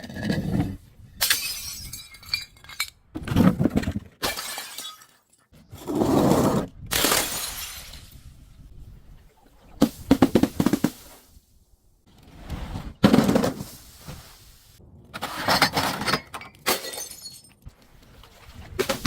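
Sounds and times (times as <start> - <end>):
glass bottles shattering: 1.2 - 3.0, 4.2 - 5.4, 6.9 - 8.3, 15.5 - 17.7.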